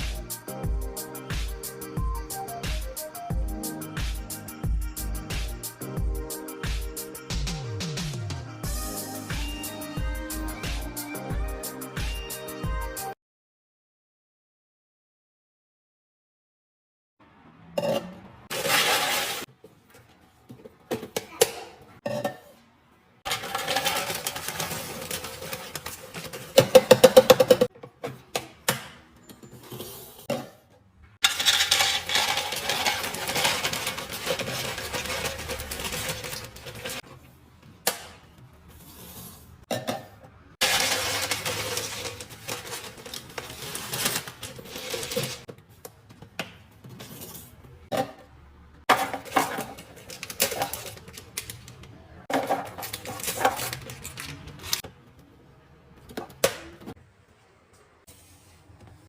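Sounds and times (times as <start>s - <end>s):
packaging rustling: 23.3s - 27.5s, 31.2s - 37.0s, 40.6s - 45.5s, 49.2s - 51.8s, 52.4s - 54.8s.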